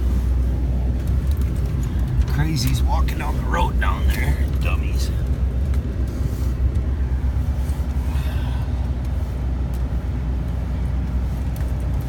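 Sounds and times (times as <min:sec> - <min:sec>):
pickup truck engine running: 0:00.0 - 0:12.0
road noise: 0:00.0 - 0:12.0.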